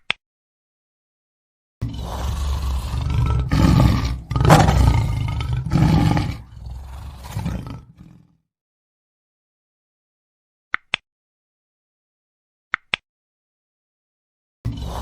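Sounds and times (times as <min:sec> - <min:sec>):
lion roaring: 0:01.8 - 0:08.3, 0:14.7 - 0:15.0.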